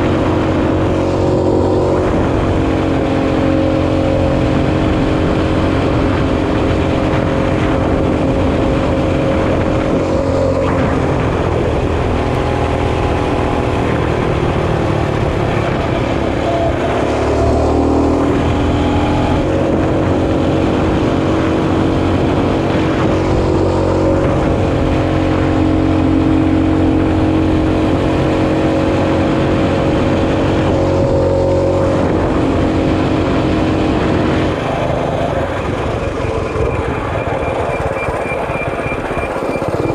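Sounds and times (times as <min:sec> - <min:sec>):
mini bike engine running: 0:32.9 - 0:39.9.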